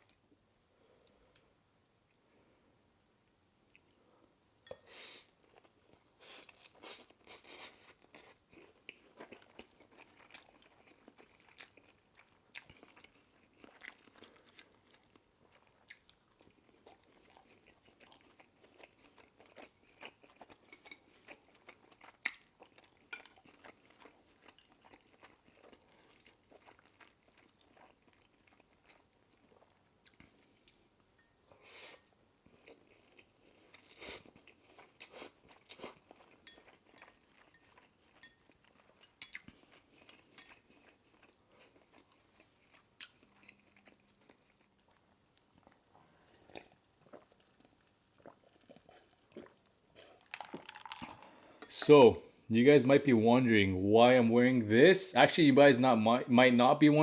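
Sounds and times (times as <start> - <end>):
chewing and biting food: 5.4 - 30.9, 32.4 - 51.4.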